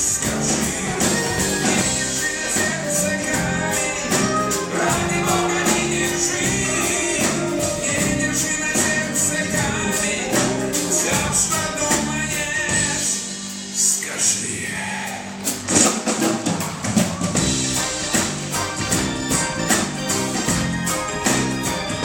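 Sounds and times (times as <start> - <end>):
person singing: 0.0 - 13.4
live band playing: 0.0 - 14.2, 15.0 - 22.0.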